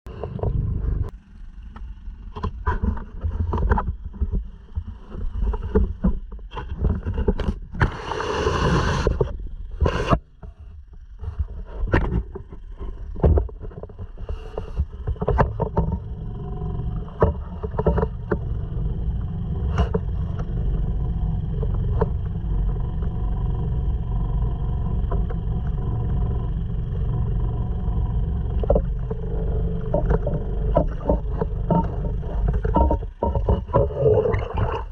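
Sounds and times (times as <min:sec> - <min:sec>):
outboard motor running: 0:00.1 - 0:34.9
knocks and bumps: 0:28.6 - 0:34.9.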